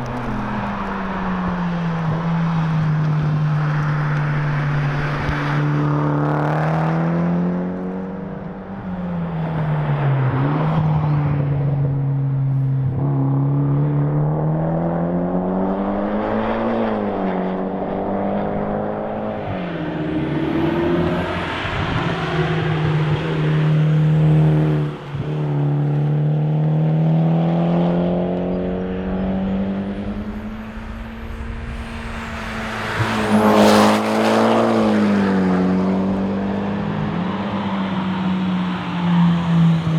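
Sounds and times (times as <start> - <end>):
car engine revving hard: 13.1 - 39.9.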